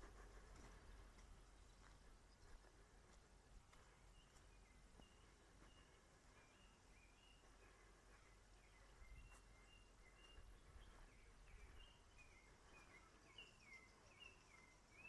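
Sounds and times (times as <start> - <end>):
faint whistled bird calls: 4.2 - 15.0.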